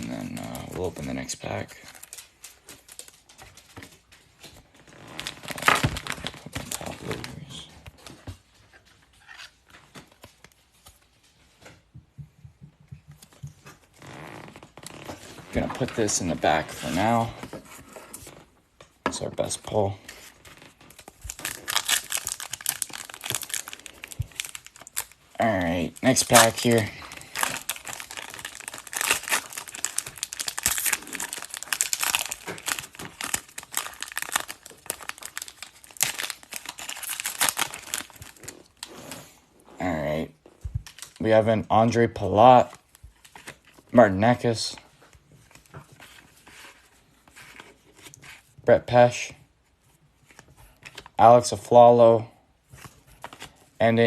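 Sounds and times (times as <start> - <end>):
trading card and sleeve handling: 1.8 - 39.0, 44.8 - 48.6, 52.6 - 53.8.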